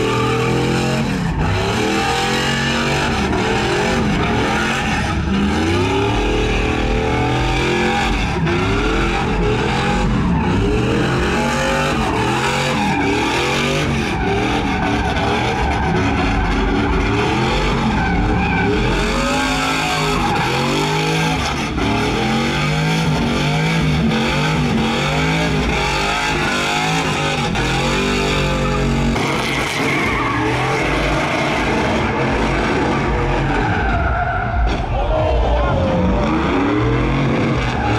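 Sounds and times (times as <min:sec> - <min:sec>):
tire squeal and skidding: 0:00.0 - 0:37.9
truck engines revving: 0:00.0 - 0:37.9.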